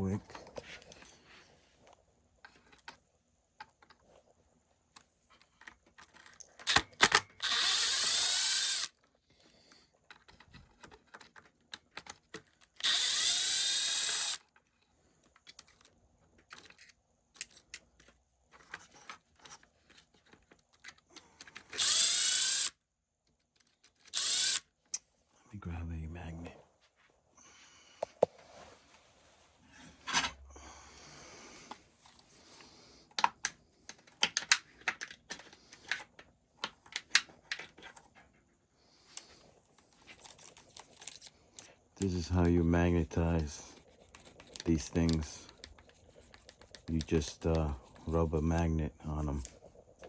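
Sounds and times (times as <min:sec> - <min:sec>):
power screwdriver running: 0:06.7 - 0:09.0, 0:12.8 - 0:14.4, 0:21.8 - 0:22.8, 0:24.1 - 0:24.6.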